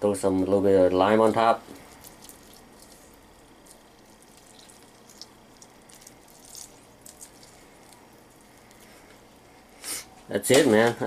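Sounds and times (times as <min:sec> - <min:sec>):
faint drips and light ticks: 0:01.7 - 0:09.7.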